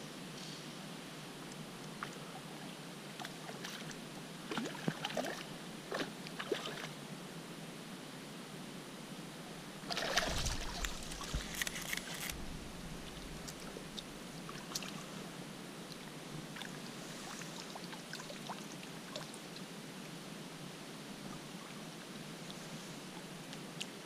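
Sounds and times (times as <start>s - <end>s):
river water flowing: 9.7s - 24.0s
loud splashing: 9.9s - 11.3s
small ticks and drips: 22.4s - 24.0s.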